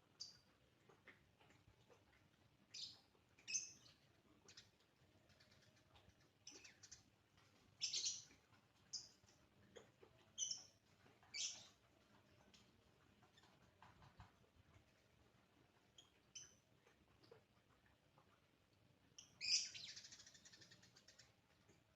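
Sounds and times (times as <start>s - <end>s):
sparrow chirping: 7.8s - 9.3s, 10.3s - 11.7s, 19.2s - 21.3s.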